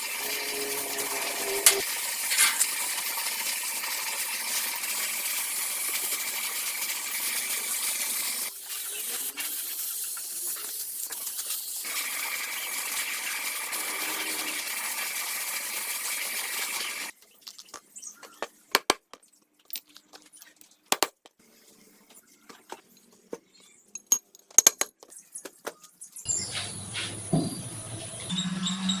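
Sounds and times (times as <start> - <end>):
spraying hiss with high tone: 0.0 - 3.8
metallic clicks of small parts: 1.6 - 2.8, 17.3 - 21.2, 24.0 - 25.8.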